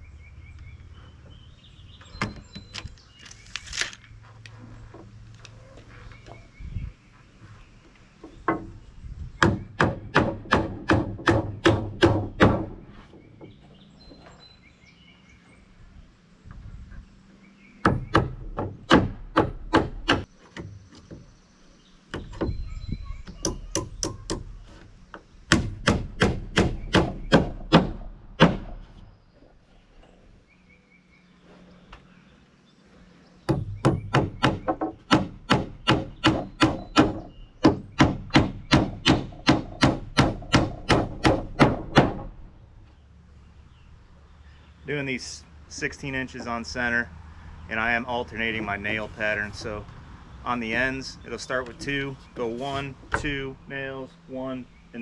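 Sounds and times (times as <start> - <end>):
hammer driving nails into wood: 17.8 - 20.7, 25.5 - 28.8, 33.5 - 42.3.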